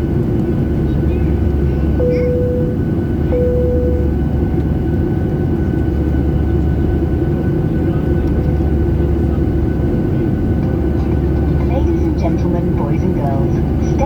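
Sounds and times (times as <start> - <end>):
jet engine rumble in cabin: 0.0 - 14.0
faint steady whine: 0.9 - 4.7
short steady tone: 2.0 - 4.2.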